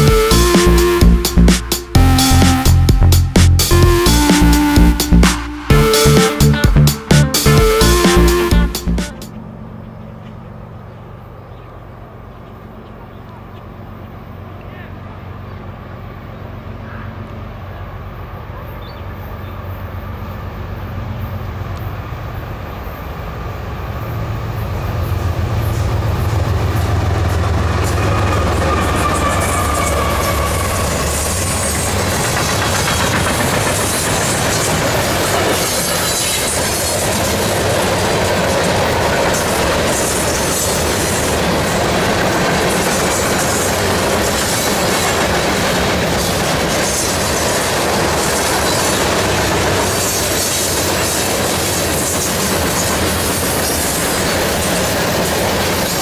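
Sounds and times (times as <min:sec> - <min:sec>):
diesel locomotive rumble: 0:00.0 - 0:56.0
freight train wheels rolling: 0:19.1 - 0:56.0.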